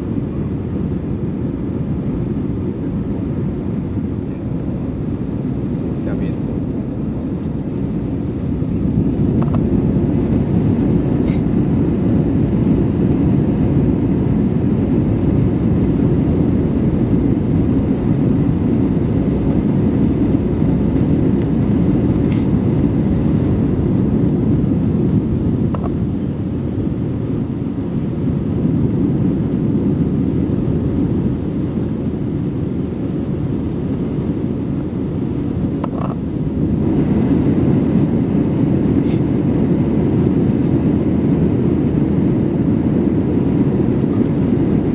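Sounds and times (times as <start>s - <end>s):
jet engine and airflow rush: 0.0s - 44.9s.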